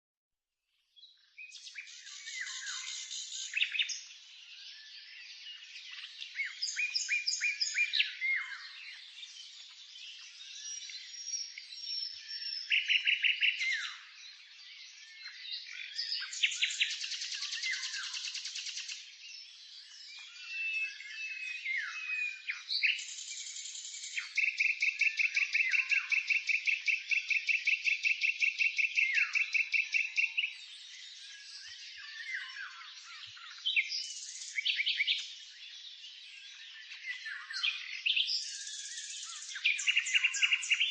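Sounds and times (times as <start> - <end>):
songbirds singing and chirping: 0.7 - 40.9.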